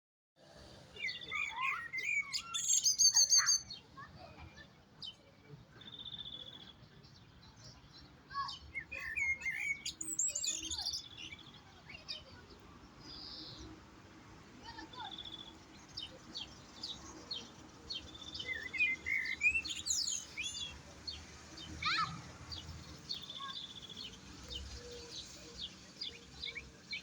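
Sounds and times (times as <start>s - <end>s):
goldfinch twittering song: 1.0s - 3.8s.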